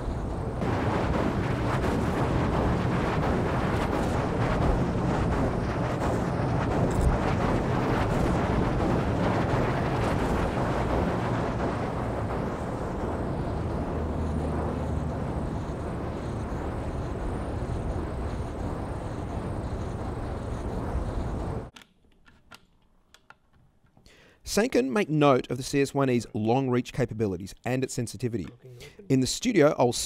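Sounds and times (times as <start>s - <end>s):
extreme wind rushing: 0.0s - 21.7s.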